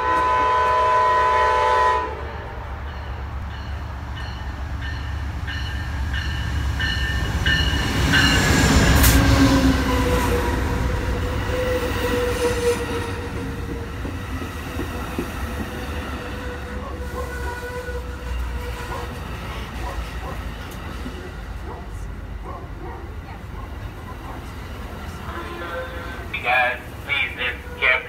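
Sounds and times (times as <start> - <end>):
train passing: 0.0 - 28.0
train bell ringing: 2.8 - 8.6.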